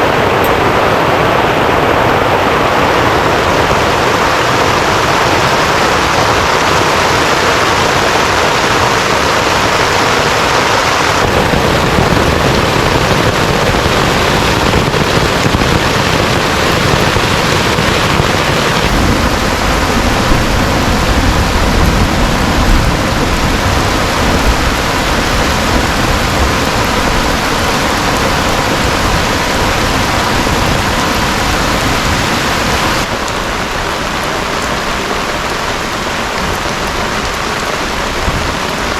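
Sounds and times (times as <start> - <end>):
heavy rain falling: 0.0 - 38.9
deep low rumble: 11.2 - 32.6.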